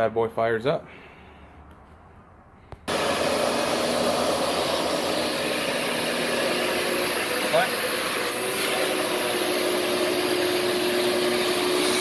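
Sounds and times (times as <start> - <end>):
shop vac motor whine: 2.9 - 12.0.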